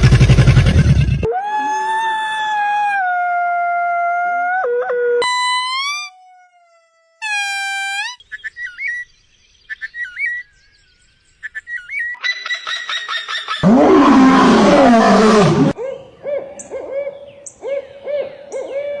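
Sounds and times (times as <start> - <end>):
bird chirps: 5.2 - 13.6
bird trill: 7.2 - 13.6.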